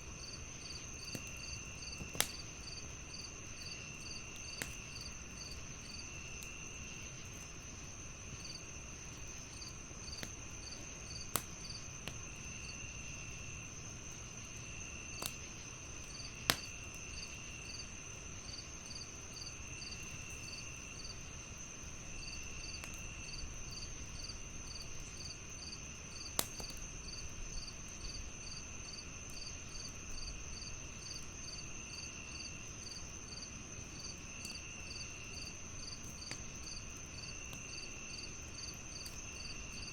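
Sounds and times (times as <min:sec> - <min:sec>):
crickets chirping: 0:00.0 - 0:39.9
wood fire crackling: 0:00.0 - 0:39.9
fire popping: 0:00.1 - 0:18.0, 0:19.0 - 0:28.4.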